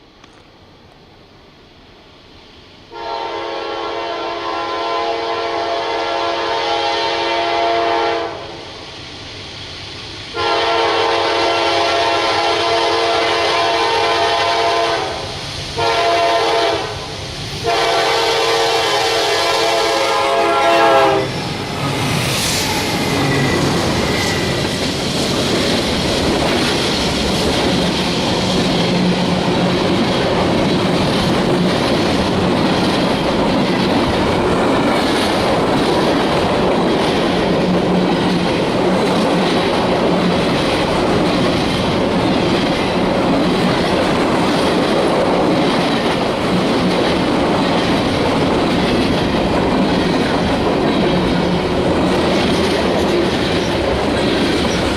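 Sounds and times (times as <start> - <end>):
train horn: 2.9 - 8.6, 10.3 - 21.4
train wheels clicking over rail joints: 21.3 - 54.9.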